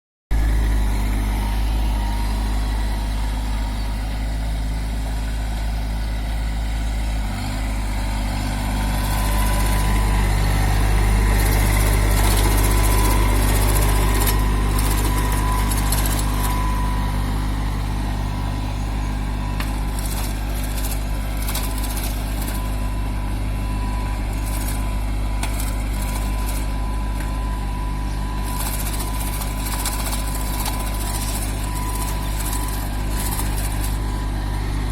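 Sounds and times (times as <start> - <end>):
tractor diesel engine running: 0.3 - 34.9.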